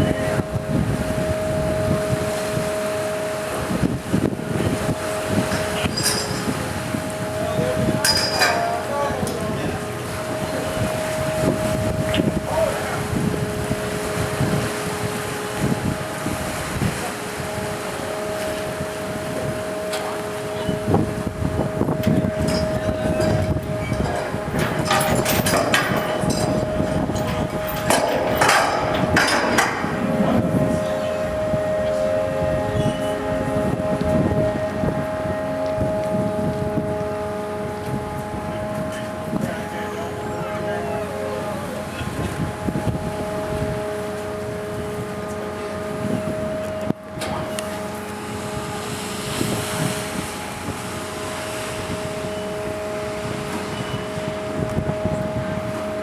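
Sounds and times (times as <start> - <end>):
ship machinery droning: 0.0 - 56.0
wind noise: 0.0 - 56.0
sharp knocks and clanks: 22.5 - 30.9.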